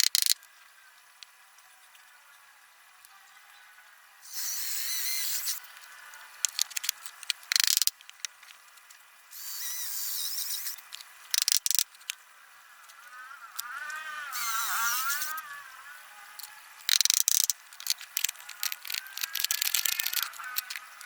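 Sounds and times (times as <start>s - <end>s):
sharp clicks and rattle: 0.0s - 0.5s, 4.4s - 12.2s, 16.3s - 21.0s
power drill whining: 13.6s - 21.0s.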